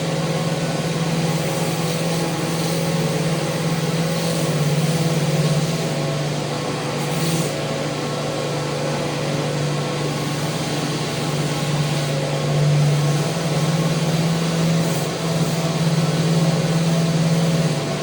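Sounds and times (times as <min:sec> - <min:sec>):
electric sander on wood: 0:08.8 - 0:18.0.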